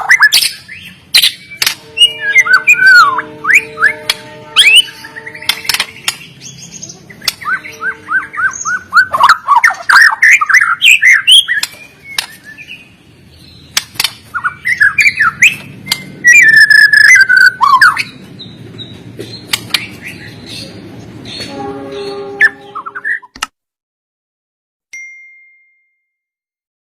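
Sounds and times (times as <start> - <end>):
bird singing varied whistles: 7.4 - 11.7, 14.3 - 18.1.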